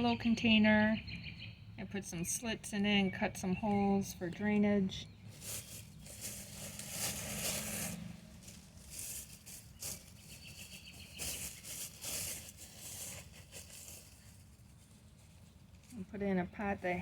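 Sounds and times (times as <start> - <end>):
scraping of potting mix: 3.6 - 17.0
hands handling plastic container: 5.2 - 16.1.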